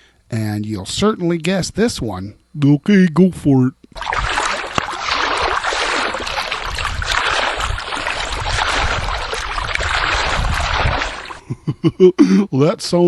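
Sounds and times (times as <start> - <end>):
water running and splashing: 4.0 - 11.4.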